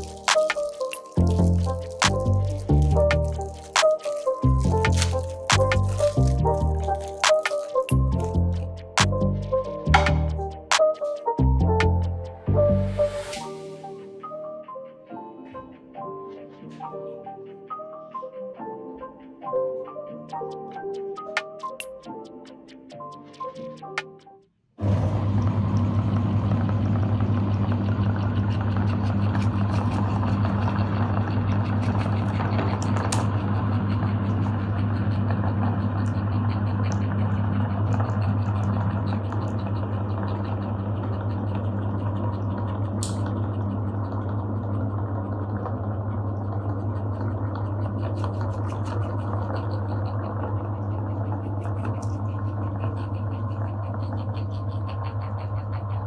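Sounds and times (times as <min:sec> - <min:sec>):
electric meat grinder humming: 0:00.0 - 0:08.6, 0:24.8 - 0:56.0
wet crackling churn: 0:00.0 - 0:08.7.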